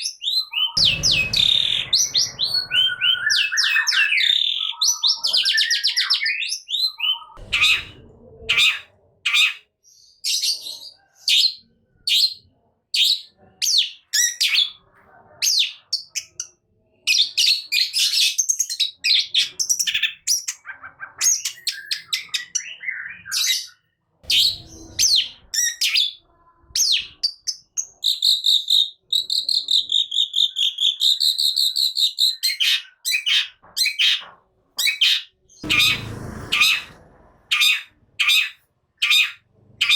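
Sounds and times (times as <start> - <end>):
bird warbling trill: 0.2 - 6.2, 35.6 - 39.9
shrike chirping: 0.6 - 5.3, 35.6 - 38.5.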